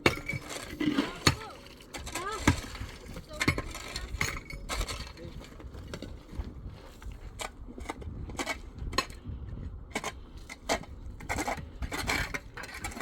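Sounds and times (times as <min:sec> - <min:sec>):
construction knocks and clinks: 0:00.0 - 0:09.3, 0:09.9 - 0:13.0
steady low rumble: 0:00.0 - 0:13.0.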